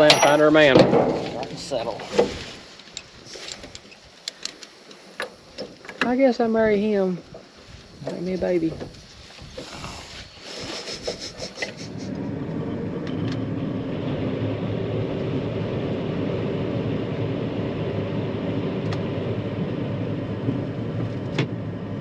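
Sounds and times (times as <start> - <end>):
combine running drone: 11.0 - 22.0.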